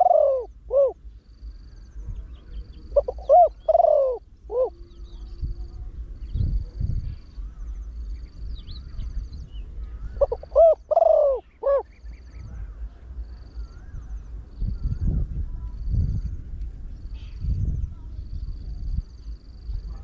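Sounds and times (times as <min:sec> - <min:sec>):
dove cooing: 0:00.0 - 0:05.6, 0:09.7 - 0:14.9
low rumble: 0:00.5 - 0:20.0
faint small bird chirps: 0:01.6 - 0:20.0.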